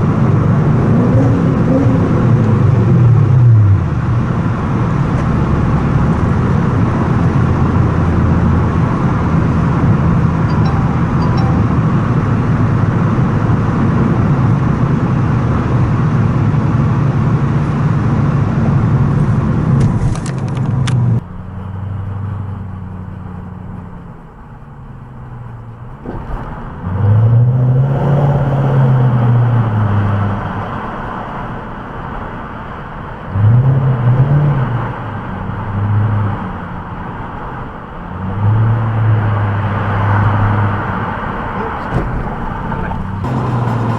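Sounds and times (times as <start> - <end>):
car exhaust at cruising speed: 12.1 - 43.9
engine accelerating: 38.2 - 43.9.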